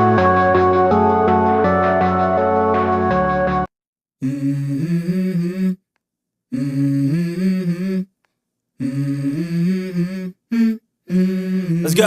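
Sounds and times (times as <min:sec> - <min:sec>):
man humming: 0:08.8 - 0:12.0.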